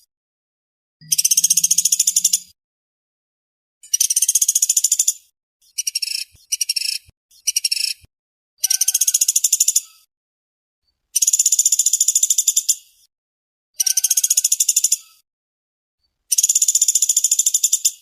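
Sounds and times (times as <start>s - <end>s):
woodpecker rattling trills: 1.0s - 2.5s, 8.6s - 9.9s, 11.2s - 12.7s, 13.8s - 15.1s, 16.3s - 18.0s.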